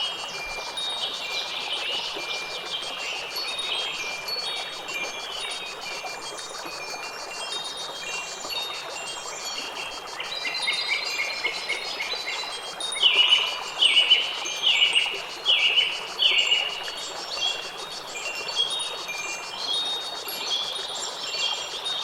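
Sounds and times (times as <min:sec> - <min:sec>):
wind chimes tinkling: 0:00.0 - 0:02.5, 0:03.1 - 0:15.1, 0:18.1 - 0:22.0.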